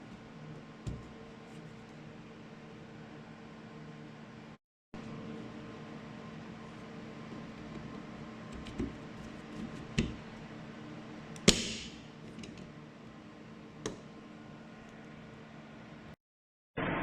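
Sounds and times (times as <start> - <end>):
steady hum: 0.0 - 16.2.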